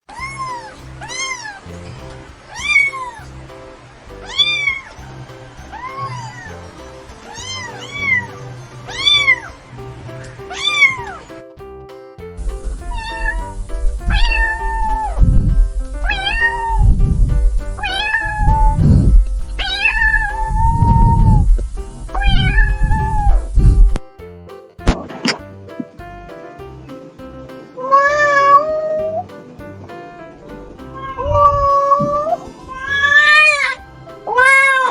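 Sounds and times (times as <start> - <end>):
kittens meowing: 0.1 - 1.8, 4.2 - 11.3, 12.8 - 17.0, 17.8 - 24.0
background music with strong beat: 0.1 - 34.9.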